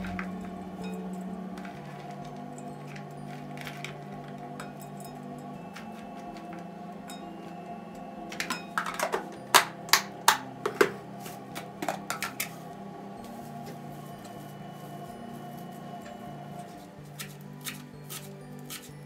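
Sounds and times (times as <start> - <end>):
soft background music: 0.0 - 19.0
hard objects clicking and clattering: 8.3 - 12.6.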